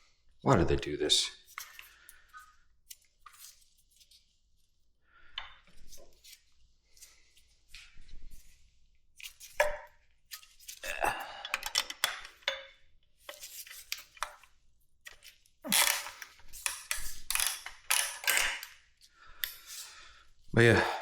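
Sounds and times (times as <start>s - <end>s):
metal tools clinking and rattling: 15.7s - 18.6s.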